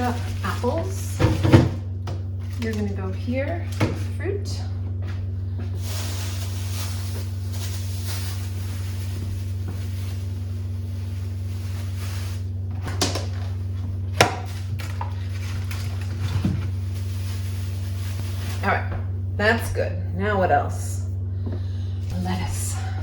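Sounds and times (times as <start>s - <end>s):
items knocking on refrigerator shelves: 0.0s - 2.8s, 12.7s - 17.9s
steady low hum: 0.0s - 23.0s.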